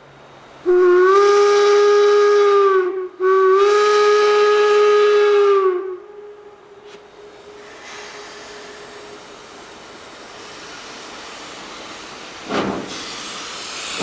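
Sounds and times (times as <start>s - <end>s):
steam locomotive whistle: 0.6s - 10.9s
steam hissing: 0.8s - 14.0s.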